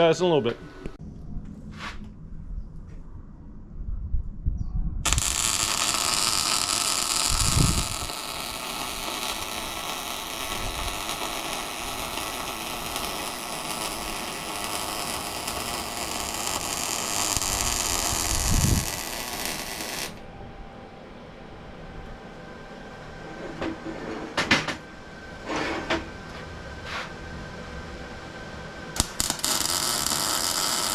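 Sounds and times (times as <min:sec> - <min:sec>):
plasma cutter hissing: 0:05.1 - 0:20.2, 0:29.0 - 0:30.9.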